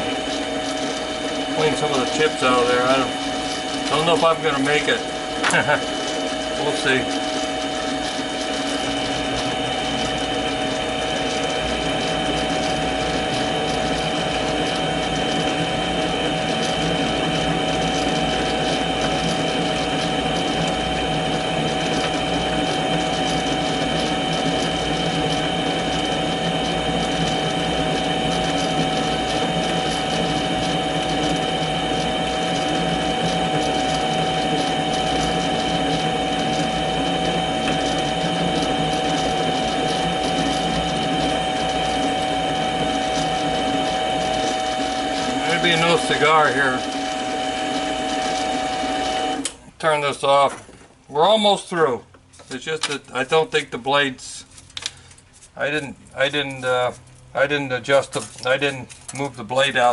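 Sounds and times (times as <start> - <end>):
lathe whining and rattling: 0.0 - 49.6.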